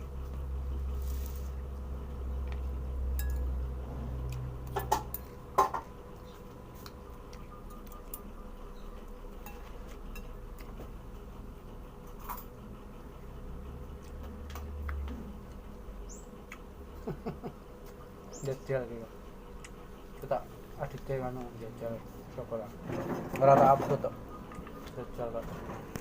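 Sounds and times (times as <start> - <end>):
steady low hum: 0.0 - 26.0
tableware clinking: 3.2 - 3.5.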